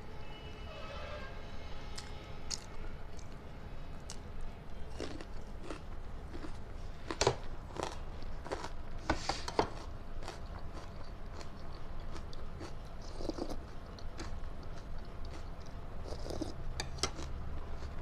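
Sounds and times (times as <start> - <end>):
faint low hum: 0.0 - 18.0
person chewing crunchy food: 4.0 - 18.0.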